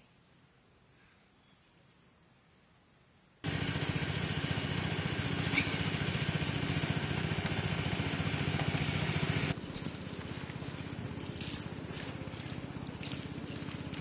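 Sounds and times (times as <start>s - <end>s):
small engine running: 3.4s - 14.0s.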